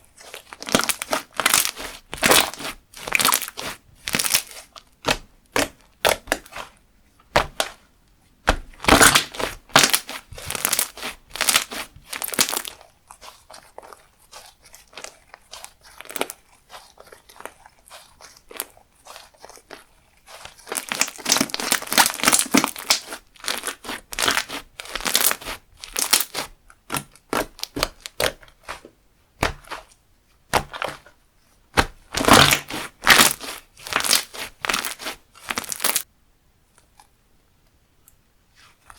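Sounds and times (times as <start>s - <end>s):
slime squished by hand crackling: 0.2s - 7.8s, 8.4s - 29.9s, 30.5s - 31.1s, 31.7s - 36.0s.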